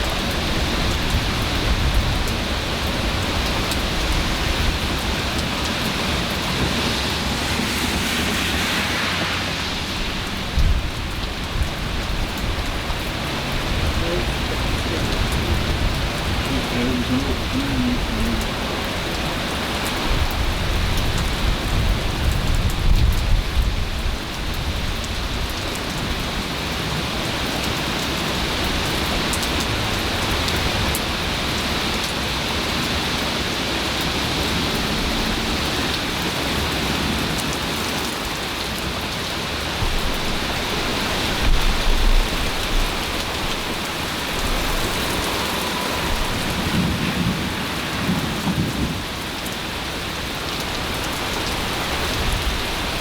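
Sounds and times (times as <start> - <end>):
thunder rumbling: 0.0 - 24.0, 39.8 - 51.0
heavy rain falling: 0.0 - 53.0.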